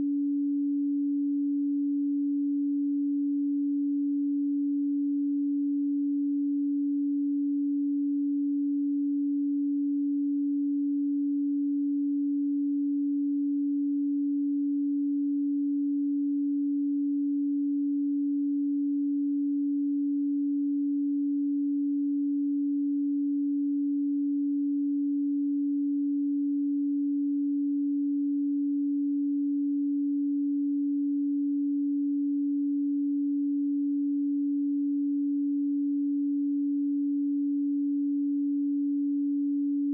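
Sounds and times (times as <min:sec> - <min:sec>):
sine-wave tone: 0:00.0 - 0:39.9.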